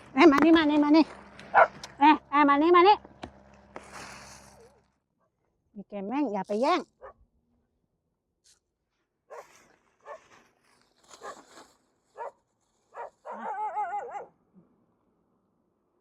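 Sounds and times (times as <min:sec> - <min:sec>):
dogs barking: 0:01.2 - 0:02.0, 0:09.3 - 0:10.2, 0:12.2 - 0:14.3
dog whining: 0:13.0 - 0:14.3.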